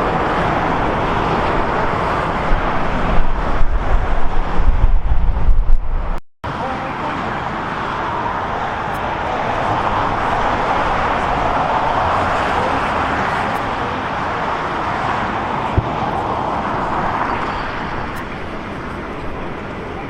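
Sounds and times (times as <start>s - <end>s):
roar of vehicle noise: 6.8s - 20.0s.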